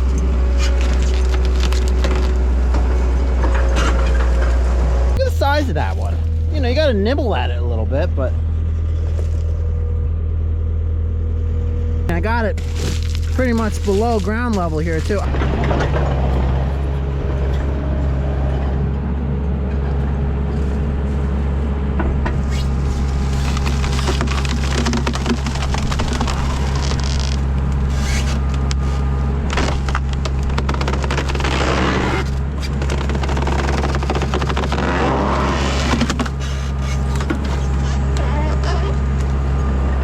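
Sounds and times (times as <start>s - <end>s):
wood and brush cracking: 0.0s - 2.7s, 12.5s - 16.3s, 22.4s - 37.8s
diesel engine running under load: 0.0s - 40.0s.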